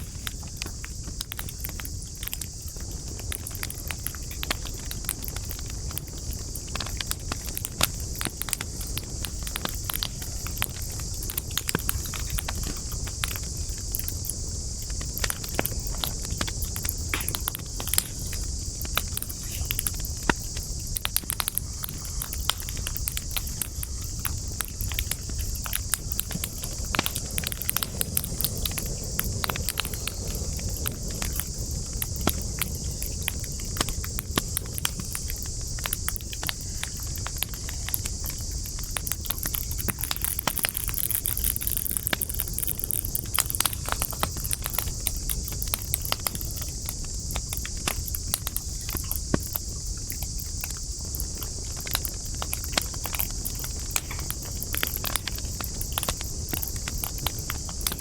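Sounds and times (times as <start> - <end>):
steady high hiss: 0.0 - 58.0
wood fire crackling: 0.0 - 58.0.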